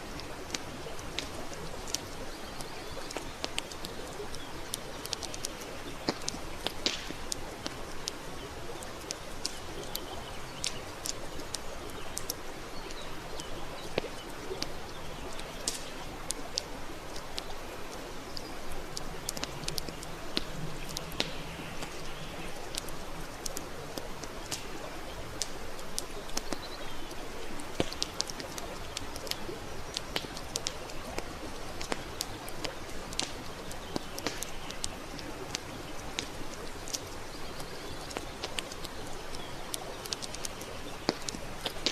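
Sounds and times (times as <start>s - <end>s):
campfire crackling and popping: 0.0s - 41.9s.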